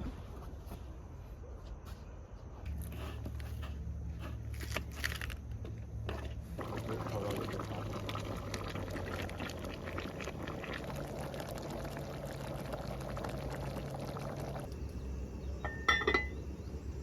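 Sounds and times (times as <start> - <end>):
liquid pouring and splashing: 6.5 - 14.7
glass or metal clink: 15.6 - 16.4.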